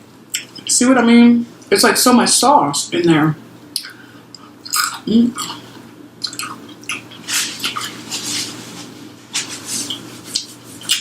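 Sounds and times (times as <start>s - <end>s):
mouth smacks and chewing: 3.7s - 8.0s, 9.8s - 11.0s.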